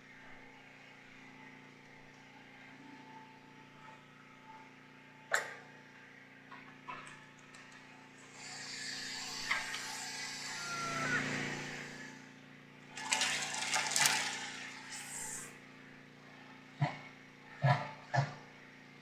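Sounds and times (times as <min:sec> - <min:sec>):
water pouring into a reservoir: 0:13.0 - 0:15.5.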